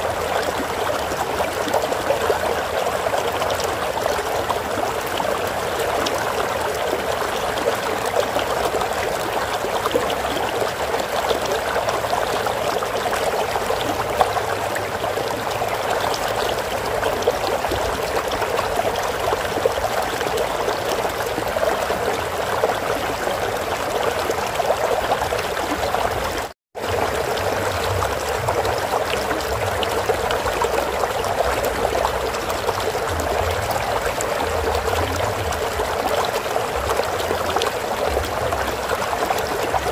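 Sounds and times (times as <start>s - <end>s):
stream water running: 0.0s - 39.9s.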